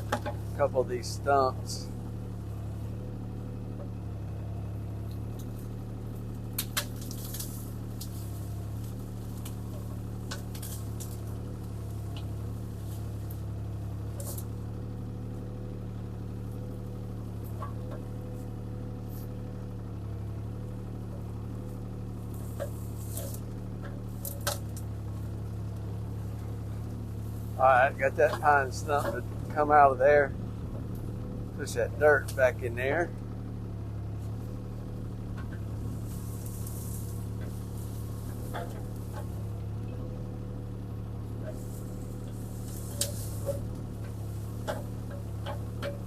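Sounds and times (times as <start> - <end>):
sharp knocks and cracks: 0.0 - 0.5, 5.0 - 13.5, 14.1 - 15.5, 16.3 - 18.5, 20.7 - 25.9, 28.0 - 29.6, 34.2 - 40.6, 41.3 - 46.0
diesel engine running: 0.0 - 46.0.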